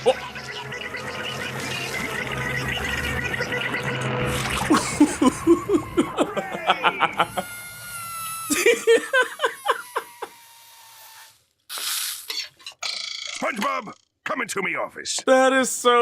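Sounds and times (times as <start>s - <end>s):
rapid staccato laughter: 4.6s - 7.4s.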